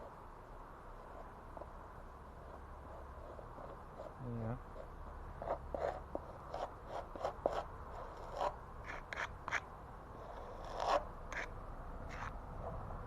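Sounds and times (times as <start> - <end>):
trowel scraping mortar: 5.4 - 11.5, 12.1 - 12.3.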